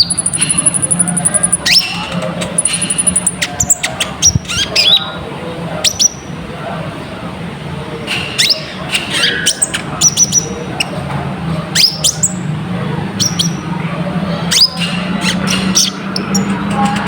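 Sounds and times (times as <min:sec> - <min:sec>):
sunbird chirping and trilling: 0:00.0 - 0:05.2, 0:11.7 - 0:12.5, 0:13.1 - 0:13.7, 0:14.5 - 0:16.6.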